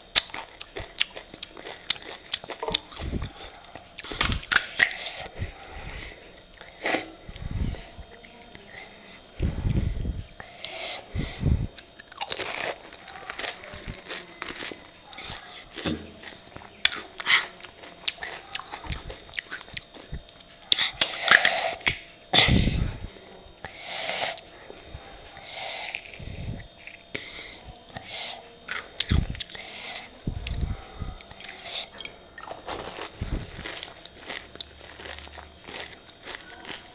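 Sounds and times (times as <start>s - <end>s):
wet chewing: 0.0s - 36.9s
crisp shells crunching: 4.0s - 5.3s, 11.8s - 20.4s, 30.5s - 36.9s.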